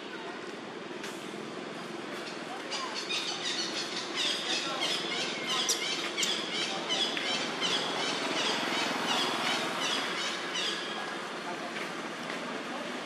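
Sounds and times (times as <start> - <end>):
outdoor background hum: 0.0 - 13.0
small birds chirping: 2.2 - 11.1.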